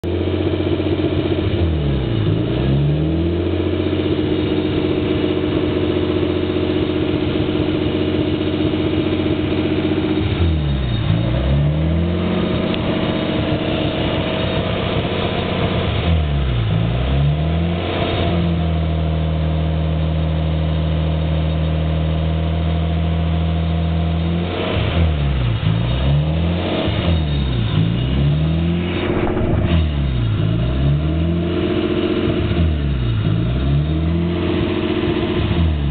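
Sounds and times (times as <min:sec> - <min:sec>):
car engine idling roughly: 0:00.0 - 0:35.9.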